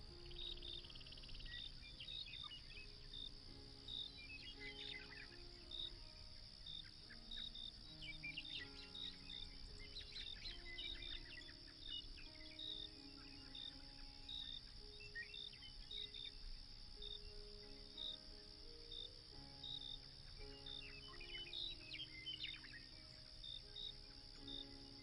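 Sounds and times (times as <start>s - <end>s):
crickets chirping: 0.0s - 25.0s
soft slow music: 0.0s - 25.0s
bird chirps and twitters: 6.7s - 16.4s.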